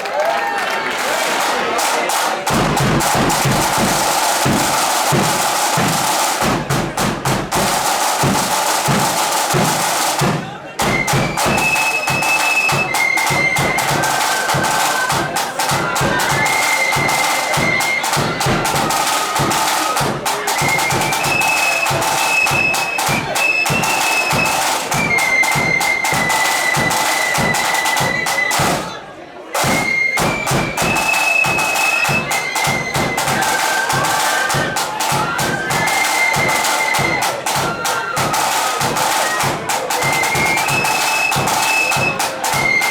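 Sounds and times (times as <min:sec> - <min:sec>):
rapid snare drumming: 0:01.0 - 0:42.9
bass drum: 0:02.5 - 0:11.5
flutes playing melody: 0:10.8 - 0:29.0, 0:29.6 - 0:42.9.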